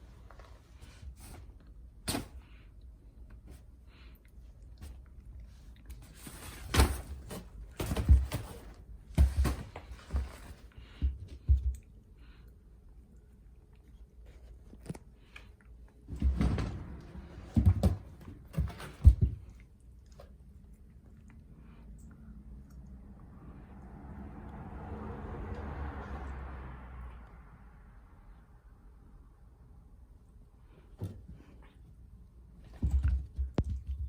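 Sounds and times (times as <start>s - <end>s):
cat thumping and scuffling: 6.1s - 11.8s, 16.1s - 19.6s, 32.6s - 34.0s.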